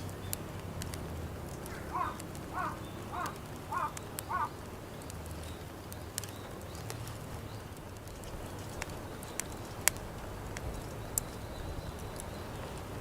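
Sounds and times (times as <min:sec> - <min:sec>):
fire crackling and popping: 0:00.0 - 0:13.0
bird calling: 0:01.6 - 0:04.7.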